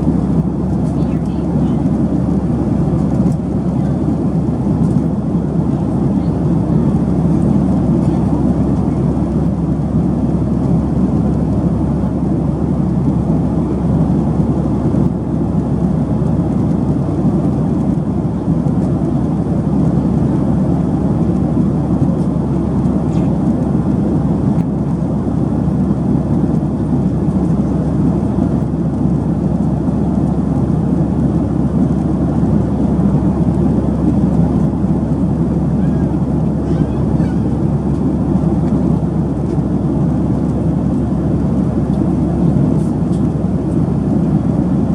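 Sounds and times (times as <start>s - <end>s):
airplane cabin noise: 0.0s - 44.9s.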